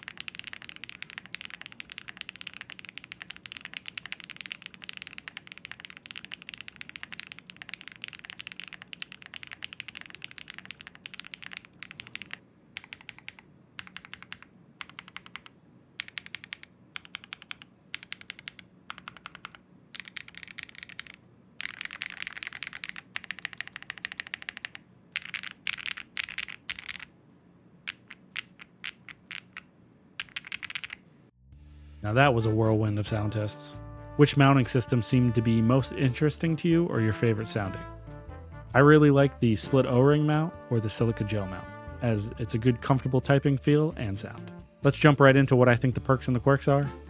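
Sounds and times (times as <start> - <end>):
mechanical keyboard typing: 0.0 - 27.1, 27.9 - 31.0.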